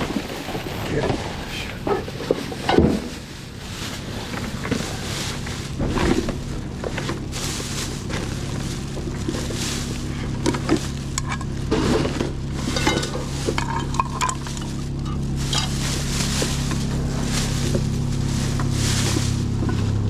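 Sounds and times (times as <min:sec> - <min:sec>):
rustling: 0:00.0 - 0:20.0
steady low hum: 0:00.0 - 0:20.0
hard objects clinking and clattering: 0:04.3 - 0:20.0.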